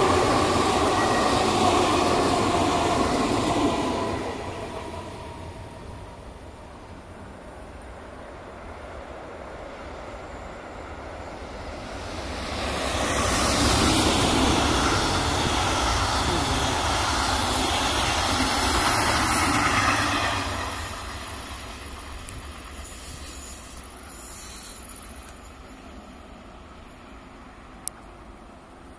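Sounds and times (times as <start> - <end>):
electric train passing: 0.0 - 28.9.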